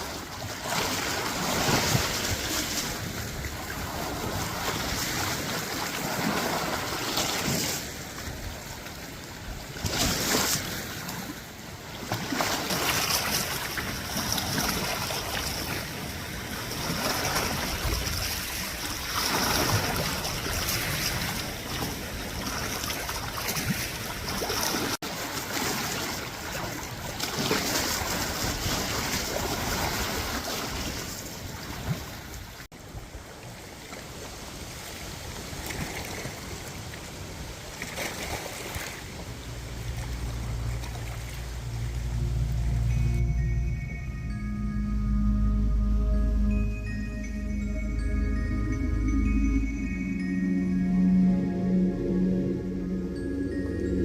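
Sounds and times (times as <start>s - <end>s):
small waves lapping at shore: 0.0s - 43.0s.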